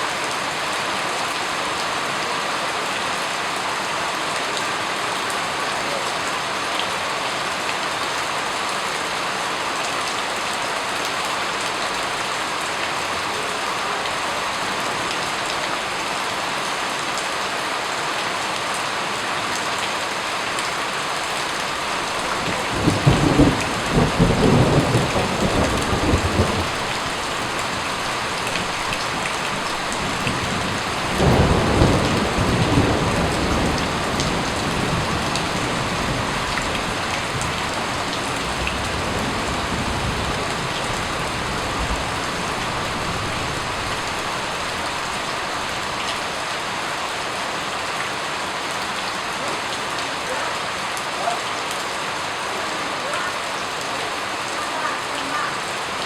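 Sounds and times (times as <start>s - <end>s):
steady rain: 0.0s - 56.0s
thunder rolling: 21.6s - 46.0s.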